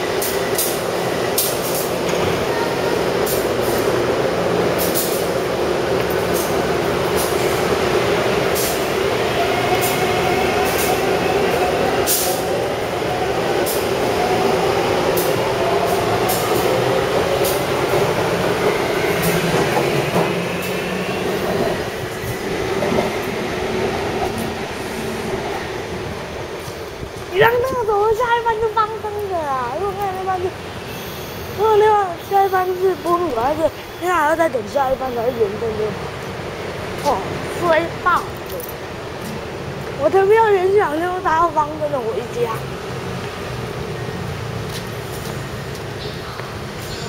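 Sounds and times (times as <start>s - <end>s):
train rail rumble: 0.0s - 47.0s.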